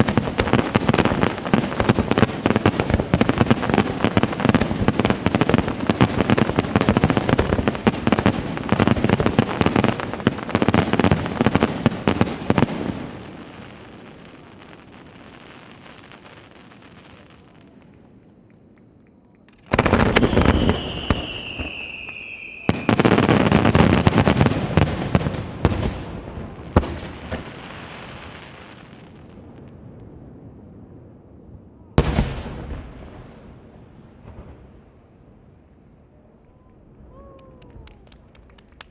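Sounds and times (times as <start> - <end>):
fireworks crackling and booming: 0.0 - 38.9
firework whistle: 19.8 - 23.2.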